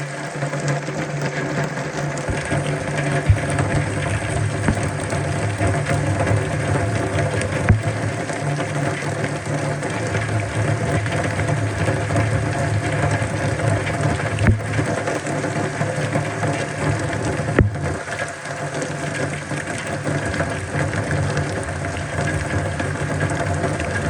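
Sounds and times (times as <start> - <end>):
low steady hum: 0.0 - 18.3
steady rain falling: 0.0 - 24.0
sharp knocks: 2.3 - 5.1, 14.4 - 14.7, 17.6 - 17.8.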